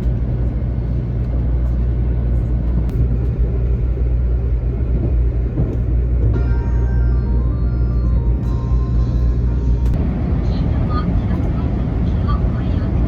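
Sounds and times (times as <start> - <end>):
train rumble inside cabin: 0.0 - 13.0
music: 6.4 - 10.0.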